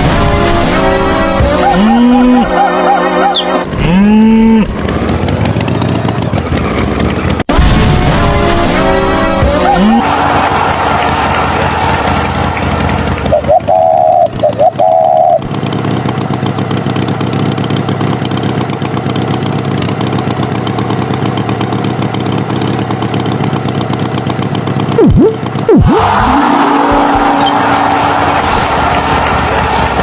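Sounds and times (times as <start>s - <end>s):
vehicle engine rattling: 0.0s - 30.0s
swooping tone: 0.9s - 4.7s, 25.0s - 28.2s.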